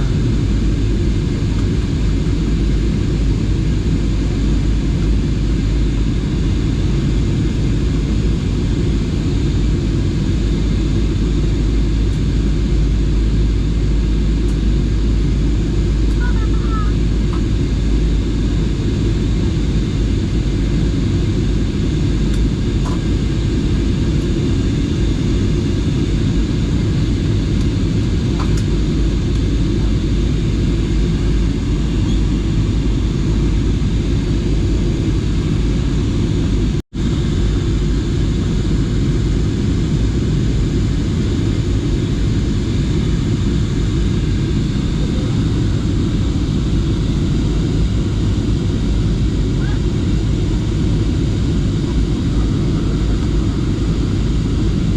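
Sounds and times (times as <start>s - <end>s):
airliner cabin engine drone: 0.0s - 54.9s.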